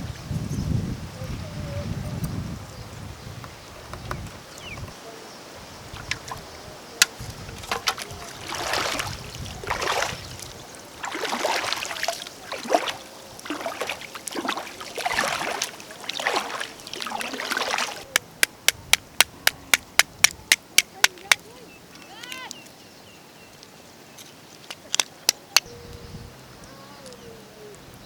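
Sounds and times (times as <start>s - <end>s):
water splashing and sloshing: 5.8s - 18.4s.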